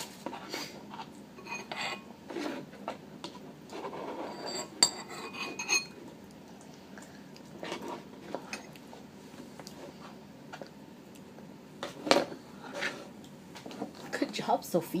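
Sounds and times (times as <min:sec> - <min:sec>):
spoon scraping and clinking on bowl: 0:01.4 - 0:02.5, 0:03.8 - 0:06.0.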